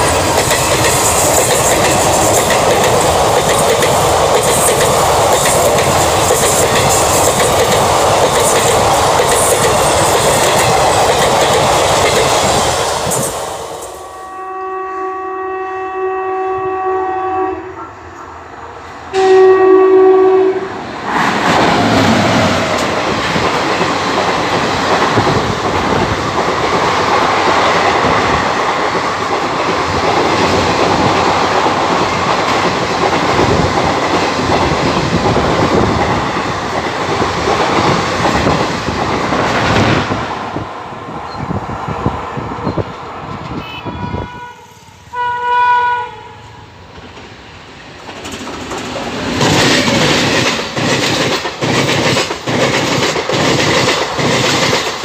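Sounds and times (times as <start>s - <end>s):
train passing with wheel clatter: 0.0s - 55.0s
locomotive horn: 14.0s - 18.5s, 19.1s - 20.8s, 43.5s - 46.7s.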